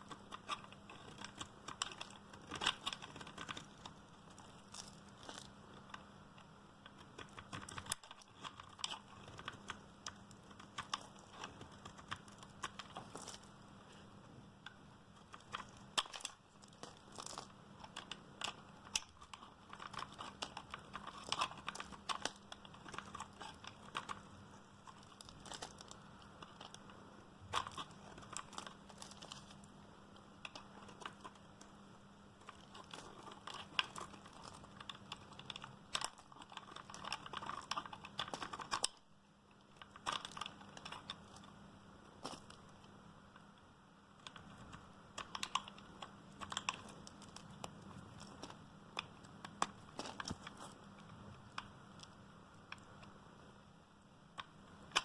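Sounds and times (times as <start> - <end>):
bar soap crunching as cut: 0.0 - 5.6, 15.3 - 26.8.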